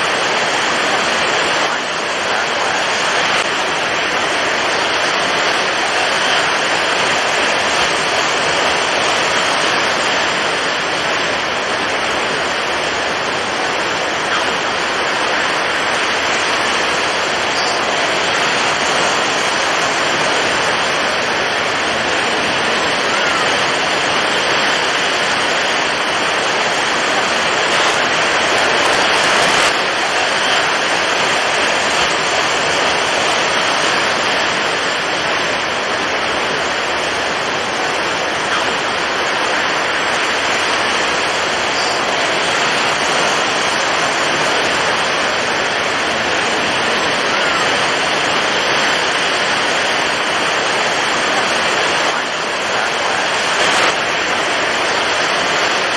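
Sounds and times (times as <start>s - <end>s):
heavy waves: 0.0s - 55.9s
strong wind: 0.0s - 55.9s.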